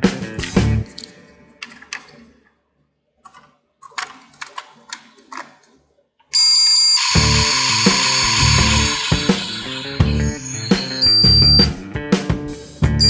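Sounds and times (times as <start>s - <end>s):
background music: 0.0s - 2.4s, 7.2s - 13.0s
loud hiss with high tone: 7.0s - 11.7s.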